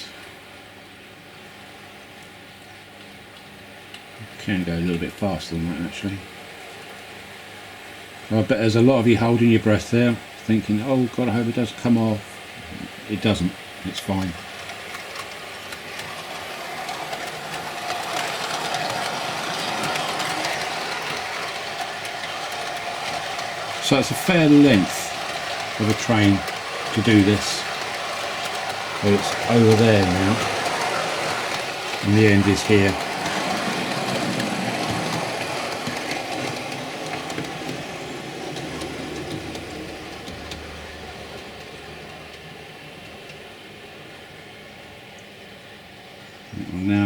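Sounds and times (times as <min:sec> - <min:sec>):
model train motor whirring: 0:14.0 - 0:42.6
faint clicks: 0:43.2 - 0:43.4.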